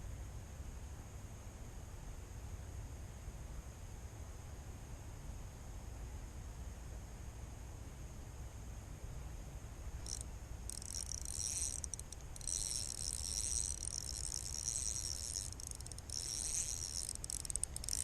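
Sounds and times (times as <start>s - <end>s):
insects chirring: 10.0s - 18.0s.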